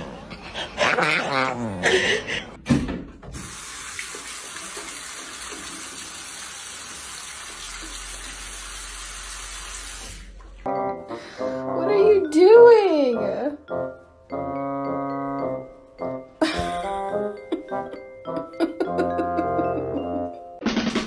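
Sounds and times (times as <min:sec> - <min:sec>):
water running from tap: 0:03.3 - 0:10.6.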